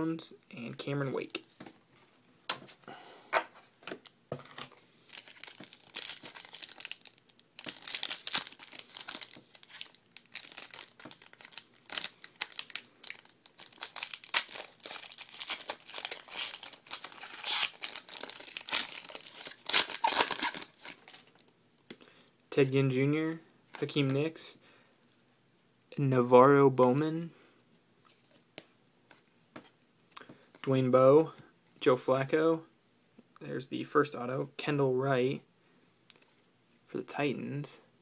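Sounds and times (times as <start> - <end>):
plastic wrappers crinkling and tearing: 4.4 - 21.5.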